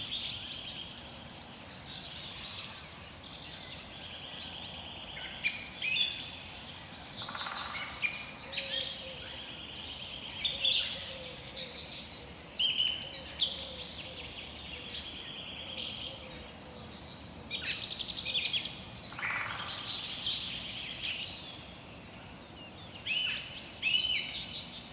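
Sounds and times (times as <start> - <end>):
faint background hiss: 0.0 - 24.9
songbirds chirping and trilling: 0.0 - 24.9.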